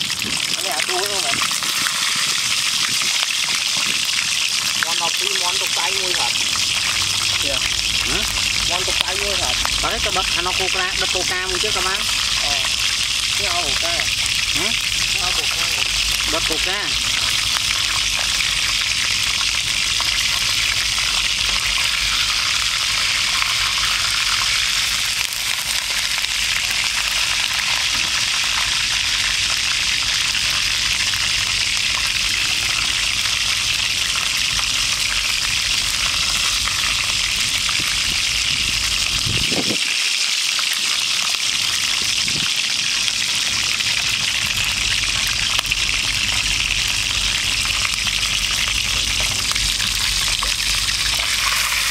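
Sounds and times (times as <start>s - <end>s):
chicken frying in hot oil: 0.0s - 51.9s.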